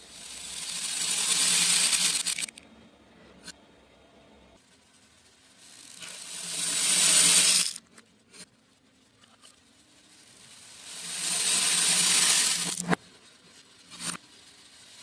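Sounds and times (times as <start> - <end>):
beads pouring: 0.0 - 2.6, 4.8 - 7.8, 9.6 - 13.0.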